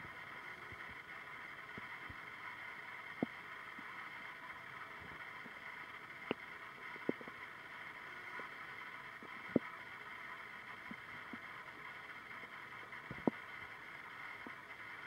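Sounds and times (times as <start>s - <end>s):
steady hiss: 0.0s - 15.0s
stomach gurgling: 4.9s - 10.2s, 12.9s - 13.6s.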